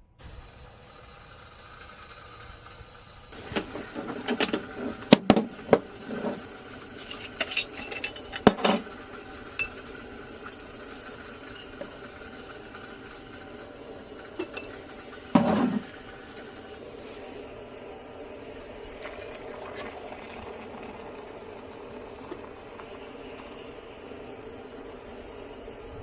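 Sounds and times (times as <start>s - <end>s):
pots and dishes clinking: 7.0s - 10.6s, 14.4s - 14.8s, 15.4s - 15.9s.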